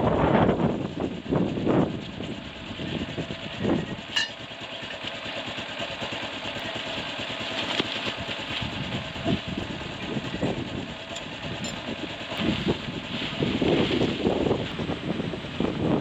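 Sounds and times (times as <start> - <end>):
storm wind: 0.0 - 4.1, 8.6 - 16.0
sharp metallic clink: 4.1 - 4.4.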